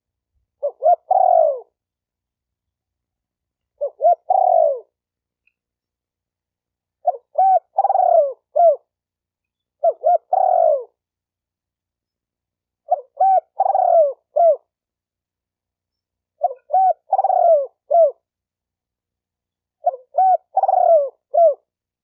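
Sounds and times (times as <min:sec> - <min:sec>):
dove cooing: 0:00.6 - 0:01.8, 0:03.8 - 0:05.0, 0:07.0 - 0:09.0, 0:09.8 - 0:11.0, 0:12.8 - 0:14.7, 0:16.4 - 0:18.3, 0:19.8 - 0:21.7.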